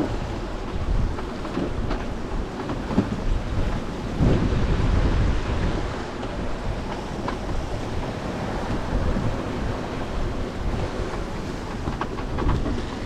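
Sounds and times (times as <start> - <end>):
strong wind buffeting microphone: 0.0 - 13.0
waves washing around boat: 0.0 - 13.0.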